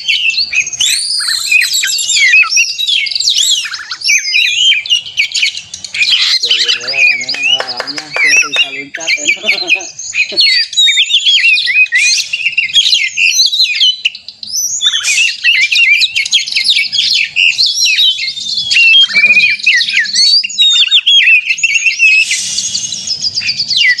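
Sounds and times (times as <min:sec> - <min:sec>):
bird singing rapid whistles: 0:00.0 - 0:24.0.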